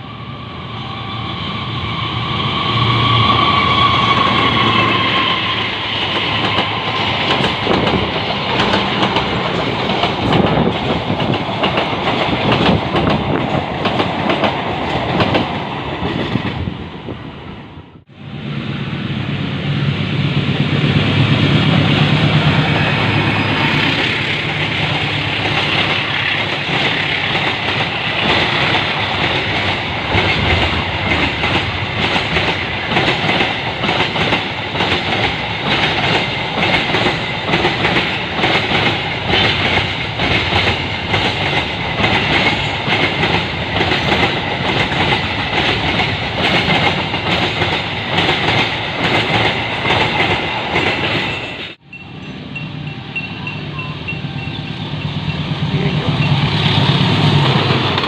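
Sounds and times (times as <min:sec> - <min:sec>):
train engine hum: 0:00.0 - 0:58.0
wheels clacking over rail joints: 0:06.1 - 0:16.6.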